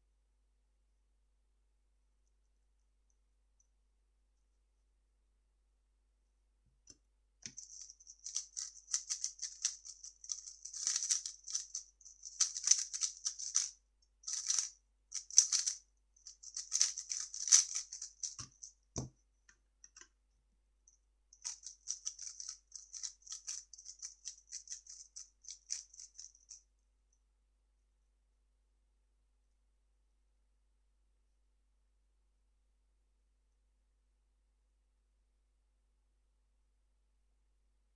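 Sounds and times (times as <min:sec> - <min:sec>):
puzzle cube clicking: 0:08.2 - 0:13.7, 0:14.3 - 0:15.8, 0:16.4 - 0:18.6, 0:21.5 - 0:26.2.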